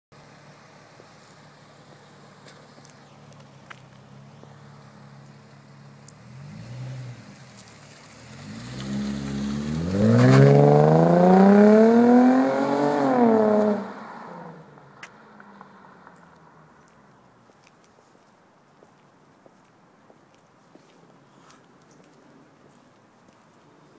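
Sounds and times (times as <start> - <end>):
car engine idling and revving: 0.2 - 17.5.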